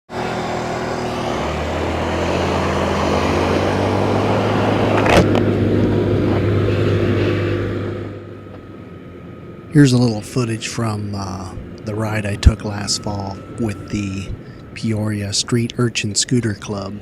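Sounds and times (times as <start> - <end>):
motor scooter engine running: 0.1 - 8.9
road and wind noise: 0.1 - 17.0.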